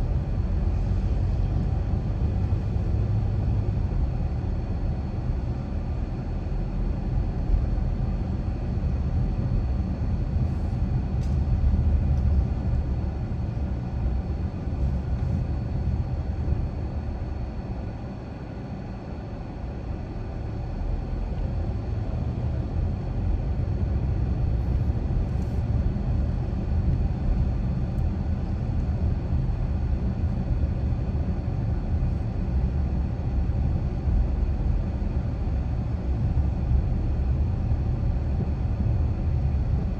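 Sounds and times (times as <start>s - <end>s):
car driving with road rumble: 0.0s - 5.7s.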